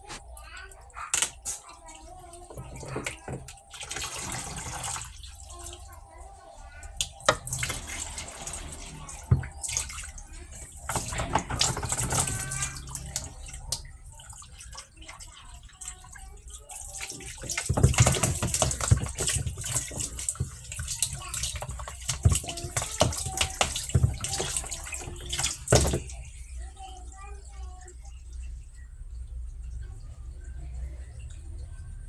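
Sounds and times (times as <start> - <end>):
water splashing in washing machine tub: 0.0 - 32.0.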